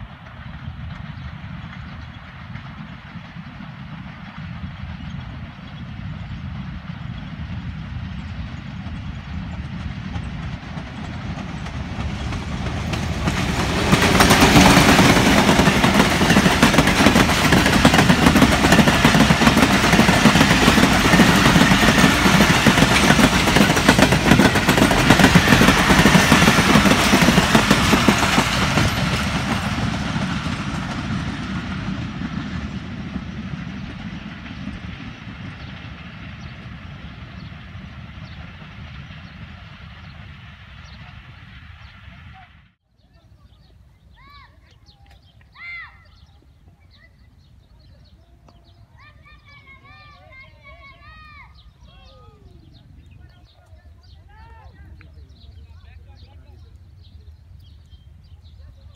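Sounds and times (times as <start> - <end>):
train wheels on rails: 0.0 - 42.1
diesel locomotive passing: 0.0 - 44.4, 45.0 - 58.9.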